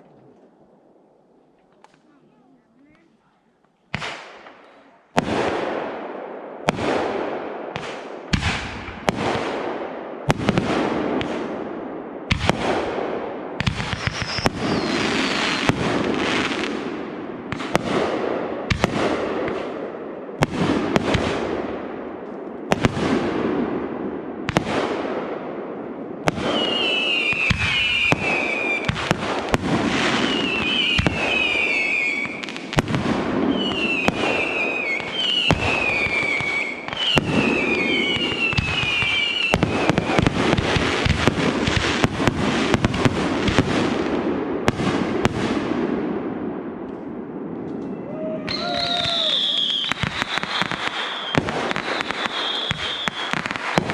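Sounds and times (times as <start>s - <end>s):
falling firework whistles: 13.9s - 15.7s, 26.5s - 29.0s, 30.0s - 32.6s, 33.5s - 40.2s, 48.5s - 53.8s.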